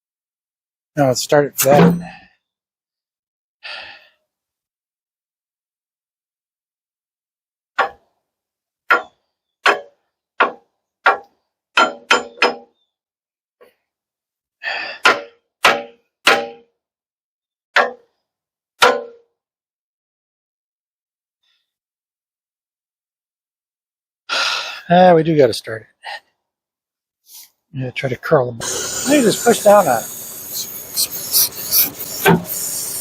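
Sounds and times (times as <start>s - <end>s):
hammer clanging on metal pin: 9.7s - 12.7s.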